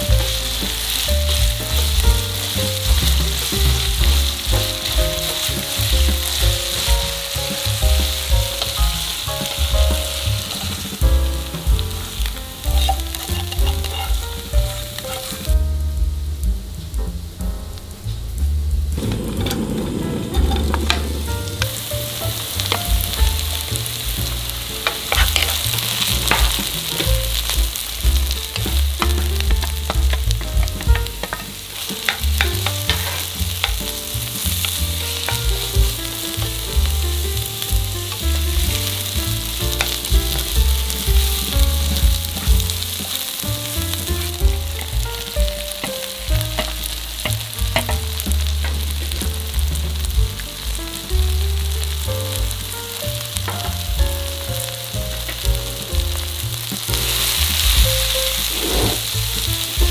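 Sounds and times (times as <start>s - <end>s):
vegetables sizzling in hot oil: 0.0s - 59.9s
wooden spatula scraping pan: 12.6s - 15.5s, 19.0s - 27.8s, 28.5s - 37.0s, 45.6s - 50.2s, 56.1s - 59.9s.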